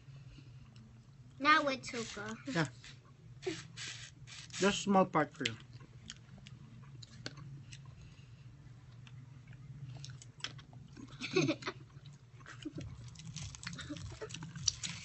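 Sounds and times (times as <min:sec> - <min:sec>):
low steady hum: 0:00.0 - 0:15.0
person chewing: 0:09.0 - 0:11.1, 0:11.9 - 0:15.0.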